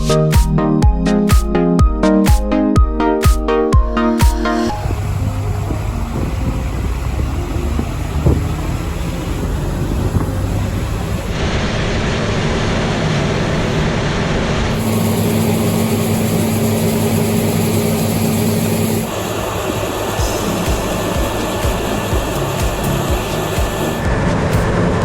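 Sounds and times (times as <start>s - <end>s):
combine harvester running: 4.6s - 25.0s.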